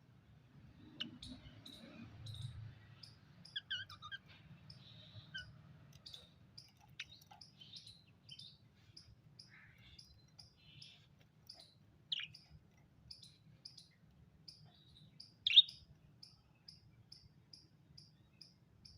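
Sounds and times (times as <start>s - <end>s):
parrot chirping: 0.9s - 8.6s, 9.4s - 13.8s, 14.7s - 15.9s.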